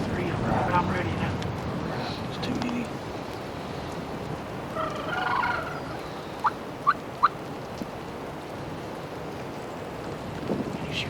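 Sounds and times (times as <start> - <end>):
turkey clucks: 4.7 - 7.4
turkey gobbling: 4.7 - 7.4.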